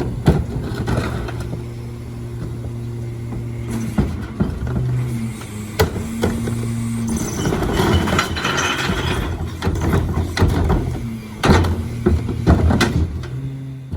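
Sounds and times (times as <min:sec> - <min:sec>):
truck engine hum: 0:00.0 - 0:13.9
metal parts clanking: 0:07.1 - 0:09.5.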